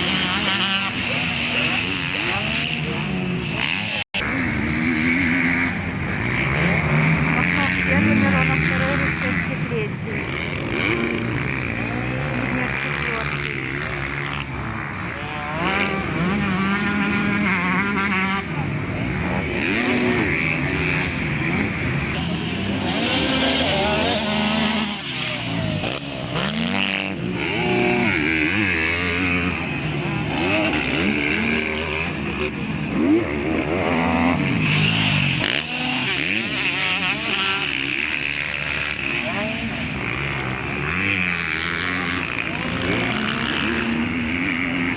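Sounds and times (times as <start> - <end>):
motocross bike engines revving: 0.0 - 44.9.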